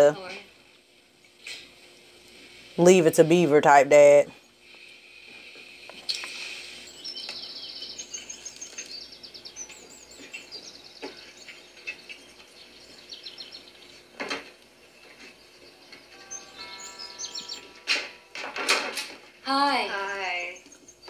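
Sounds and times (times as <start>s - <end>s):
small birds chirping and trilling: 4.1s - 18.4s, 19.4s - 21.0s.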